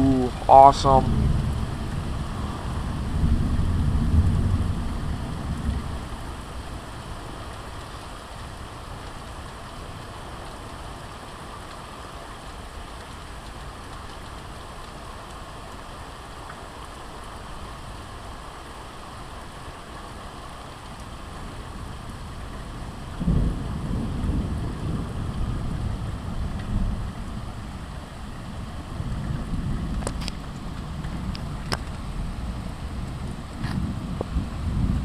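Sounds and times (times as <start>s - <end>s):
thunder rumbling: 0.0s - 7.4s, 21.5s - 35.0s
steady rain falling: 0.0s - 35.0s.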